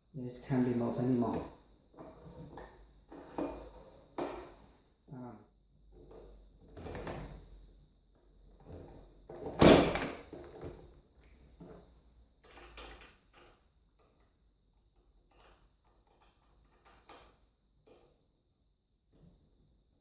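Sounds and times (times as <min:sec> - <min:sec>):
loud clunk on workbench: 0:09.6 - 0:10.2.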